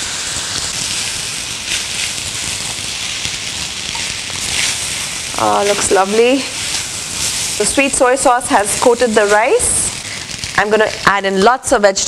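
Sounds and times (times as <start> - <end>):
rice sizzling in a pan: 0.0 - 12.0
spatula scraping a pan: 1.7 - 9.8.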